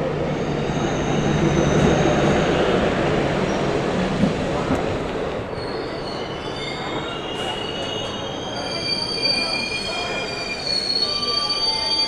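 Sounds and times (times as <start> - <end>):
train rumble: 0.0 - 10.4
train wheels squealing: 5.5 - 12.0.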